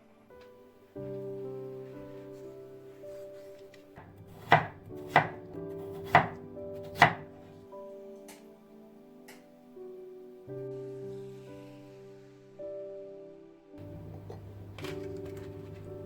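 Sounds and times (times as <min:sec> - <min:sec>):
soft background music: 0:00.0 - 0:16.0
knife chopping on cutting board: 0:04.3 - 0:07.3.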